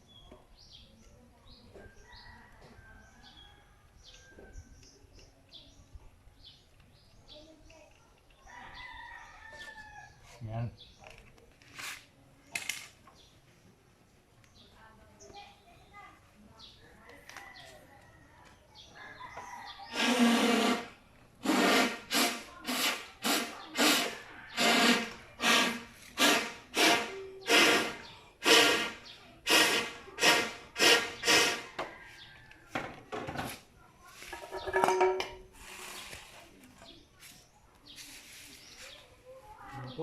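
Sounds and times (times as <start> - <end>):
hand tool scraping: 19.9 - 31.9, 33.5 - 37.4.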